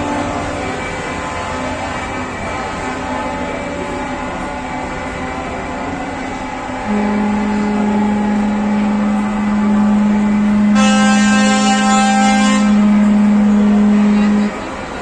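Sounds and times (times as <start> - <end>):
higher-pitched truck horn: 6.8 - 14.8
low truck air horn blast: 6.8 - 14.9.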